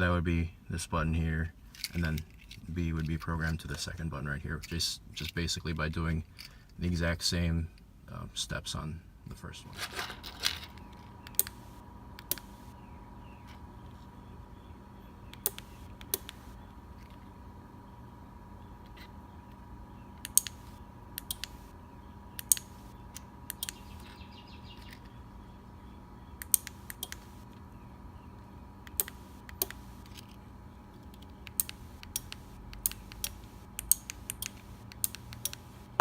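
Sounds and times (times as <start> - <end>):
faint electrical hum: 0.0 - 36.0
sharp mechanical clicks: 11.2 - 12.8, 15.3 - 16.6, 20.2 - 21.7, 22.3 - 25.1, 26.4 - 27.6, 28.8 - 30.4, 31.1 - 36.0.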